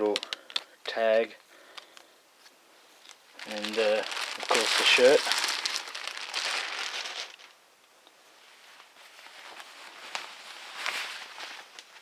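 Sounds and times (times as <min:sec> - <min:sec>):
fabric rustling: 0:02.4 - 0:07.6, 0:08.2 - 0:12.0
packaging bag rustling: 0:03.0 - 0:07.6.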